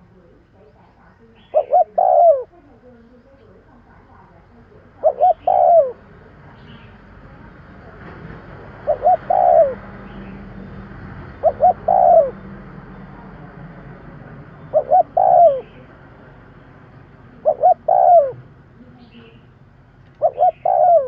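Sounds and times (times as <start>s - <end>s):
dove cooing: 1.2s - 3.6s, 4.3s - 6.9s, 8.6s - 10.5s, 11.2s - 12.5s, 14.5s - 16.0s, 17.3s - 18.5s, 20.1s - 21.0s.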